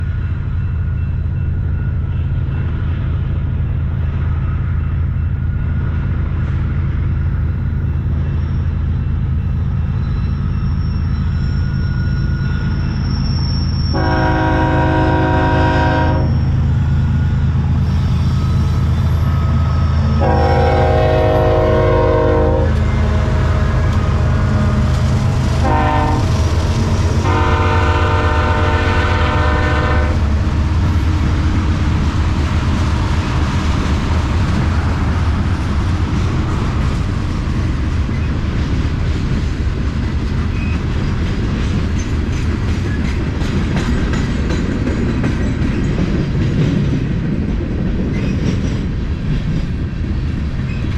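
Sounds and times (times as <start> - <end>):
locomotive horn blasts: 13.9 - 16.5, 20.2 - 24.9, 25.6 - 26.4, 27.2 - 30.3
diesel engines rumbling: 13.9 - 41.8
train wheels clattering on rails: 14.0 - 50.9.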